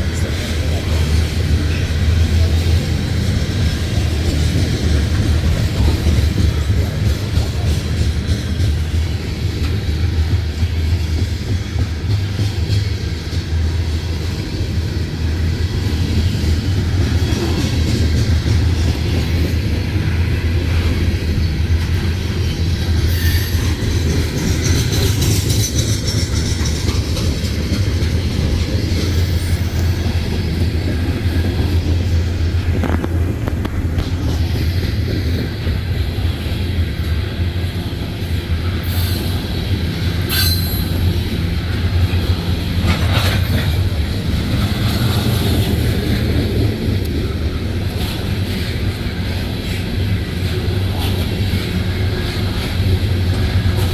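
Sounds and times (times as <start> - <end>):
train cars rumbling past: 0.0 - 53.9
wheel squeals: 23.0 - 27.0, 40.3 - 41.1.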